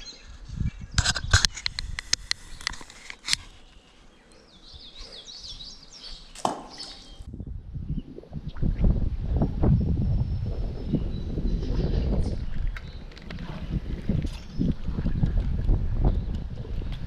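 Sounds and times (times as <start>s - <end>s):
small bird chirping: 3.6s - 7.3s
low gusty rumble: 7.2s - 17.0s.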